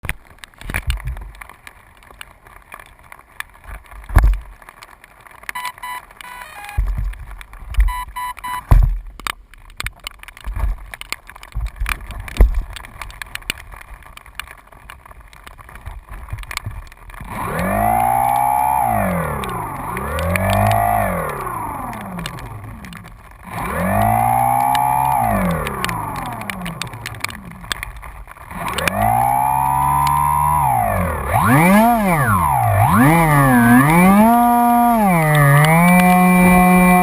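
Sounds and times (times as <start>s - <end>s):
short beeps: 5.6s - 6.8s, 7.9s - 8.7s
engine revving: 17.2s - 37.0s.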